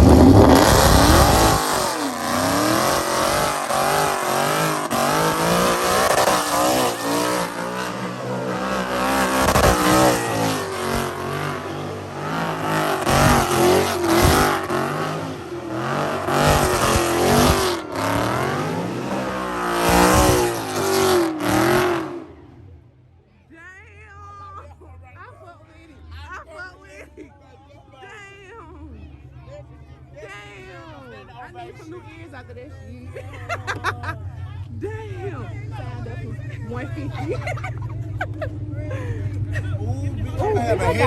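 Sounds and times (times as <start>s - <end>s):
car engine revving: 0.0s - 23.0s, 33.4s - 41.0s.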